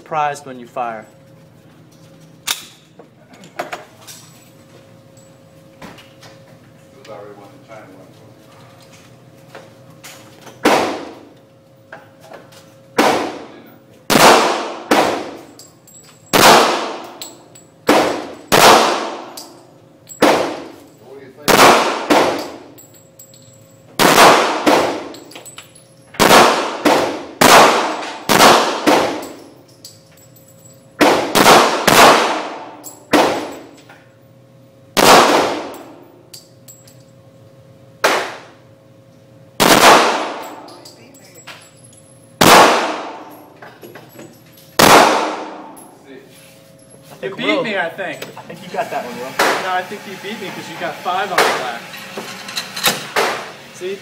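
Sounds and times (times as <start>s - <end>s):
pistol shots: 10.6s - 11.2s, 13.0s - 13.5s, 14.1s - 15.5s, 16.3s - 17.2s, 17.8s - 19.4s, 20.2s - 20.8s, 21.5s - 22.6s, 24.0s - 25.1s, 26.2s - 29.3s, 31.0s - 33.6s, 35.0s - 35.8s, 38.0s - 38.5s, 39.6s - 40.6s, 42.4s - 43.3s, 44.8s - 45.7s.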